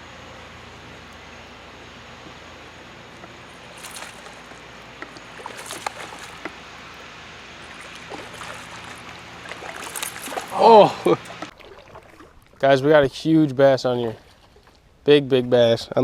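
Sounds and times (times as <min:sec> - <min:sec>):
water splashing and lapping: 0:03.2 - 0:12.7, 0:14.1 - 0:14.9
river water rushing: 0:03.5 - 0:12.6.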